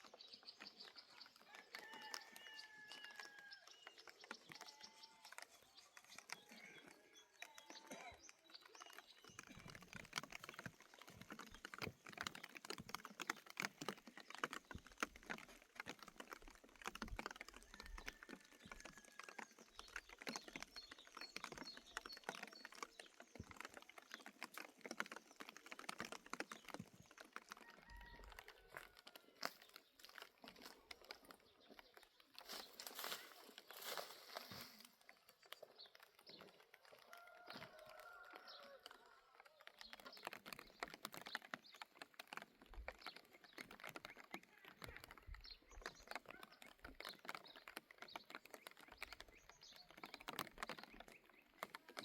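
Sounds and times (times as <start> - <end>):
faint clicking and tapping: 0.0 - 52.0.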